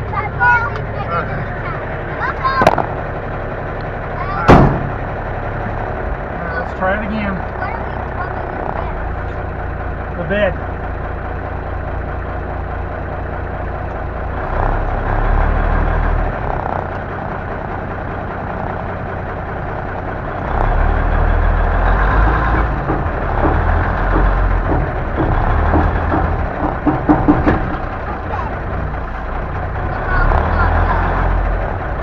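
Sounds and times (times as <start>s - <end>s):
truck diesel engine rumbling: 0.0s - 32.0s
short knocks: 1.8s - 3.2s, 4.4s - 9.5s, 20.4s - 32.0s.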